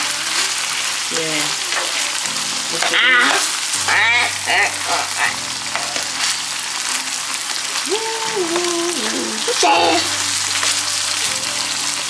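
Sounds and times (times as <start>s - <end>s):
food sizzling in a frying pan: 0.0s - 12.0s
short high-pitched vocal sounds: 7.9s - 10.2s.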